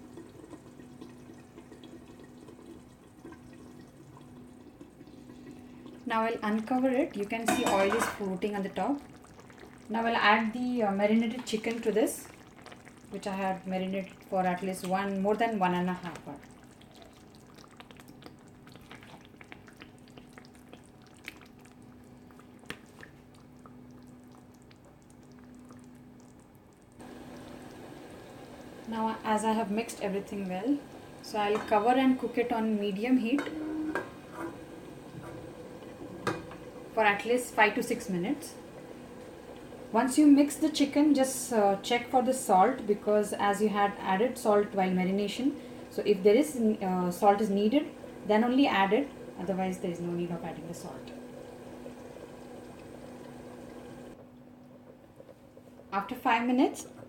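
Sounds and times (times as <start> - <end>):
sauce bubbling and popping: 0.0 - 32.6, 33.2 - 41.2, 50.5 - 56.2
wet squelching: 16.0 - 26.5.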